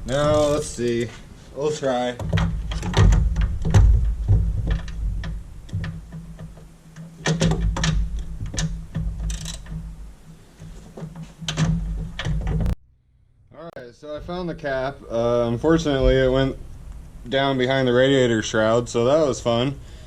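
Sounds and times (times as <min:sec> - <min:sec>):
hand tools clicking and clattering: 0:02.2 - 0:12.8.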